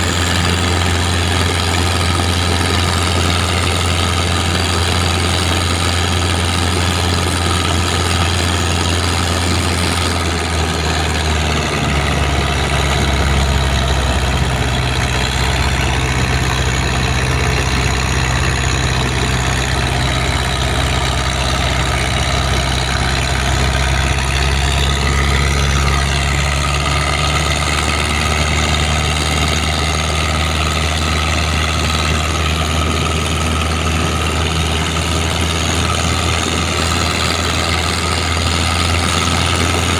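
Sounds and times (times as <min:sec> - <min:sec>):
boat diesel engine running: 0:00.0 - 0:39.9.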